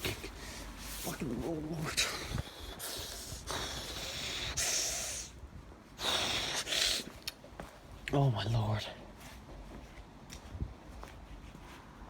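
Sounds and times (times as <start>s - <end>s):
person breathing hard: 2.0s - 5.4s, 6.0s - 7.1s.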